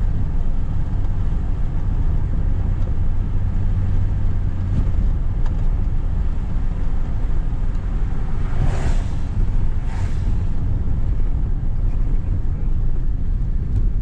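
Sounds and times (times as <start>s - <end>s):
engine rumbling: 0.0s - 14.0s
wind buffeting microphone: 3.5s - 14.0s.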